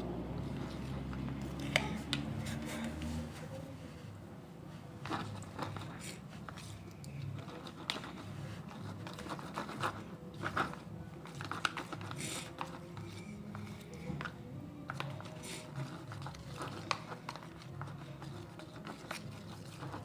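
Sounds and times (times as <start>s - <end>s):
crinkling handling noises: 4.6s - 20.0s.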